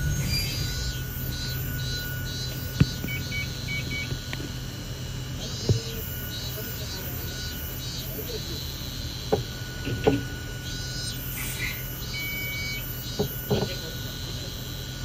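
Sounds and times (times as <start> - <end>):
rhythmic high chirping: 0.0 - 4.1
steady high tone: 0.0 - 14.8
train car low hum: 0.0 - 15.0.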